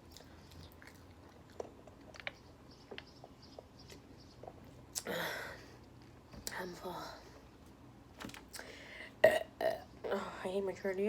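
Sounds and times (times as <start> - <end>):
person chewing food: 0.0 - 5.0
mouth clicks and crunches: 0.0 - 5.1.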